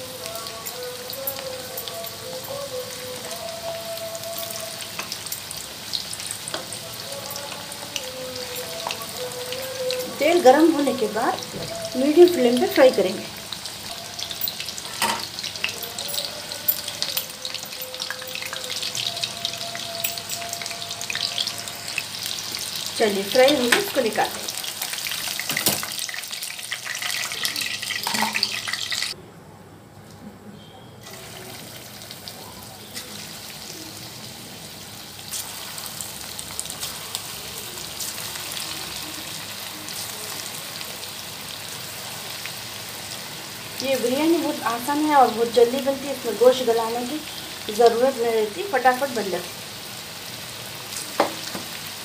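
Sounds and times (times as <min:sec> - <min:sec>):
chicken deep-frying in oil: 0:00.0 - 0:29.2, 0:31.0 - 0:52.0.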